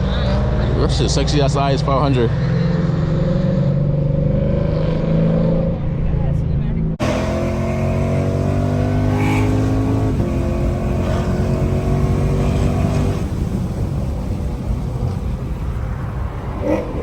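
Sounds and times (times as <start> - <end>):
road rumble: 0.0 - 17.0
car engine accelerating: 6.8 - 17.0.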